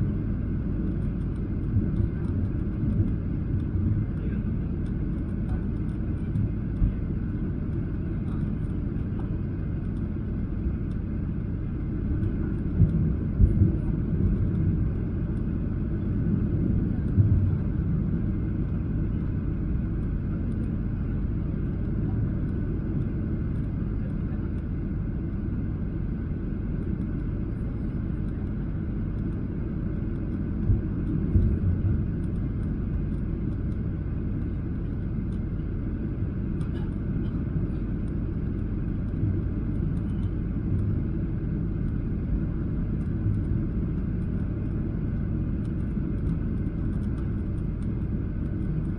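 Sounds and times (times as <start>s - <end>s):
low rumble of engines and airflow: 0.0s - 48.9s.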